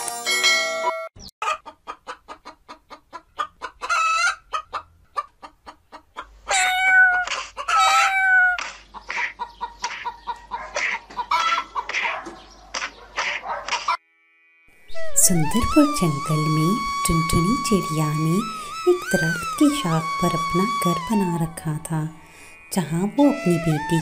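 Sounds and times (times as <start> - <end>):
cartoon bird clucking: 6.5 - 12.1.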